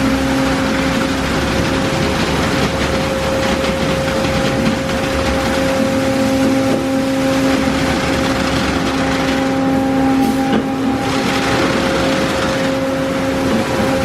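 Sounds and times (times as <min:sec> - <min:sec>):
motor or pump whine: 0:00.0 - 0:14.0.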